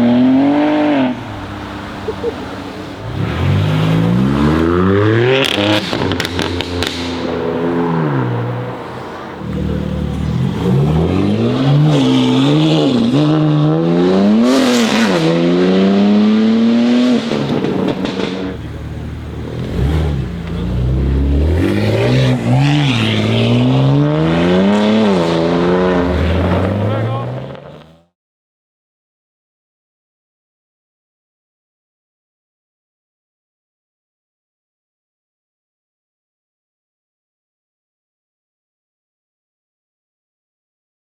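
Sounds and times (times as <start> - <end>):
car engine revving: 0.0 - 28.1.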